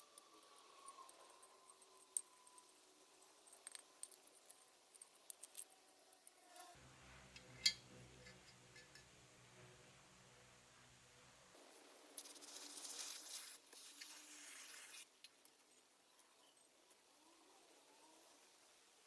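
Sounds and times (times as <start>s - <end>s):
small objects clicking: 3.4s - 6.4s
low steady hum: 6.7s - 12.2s.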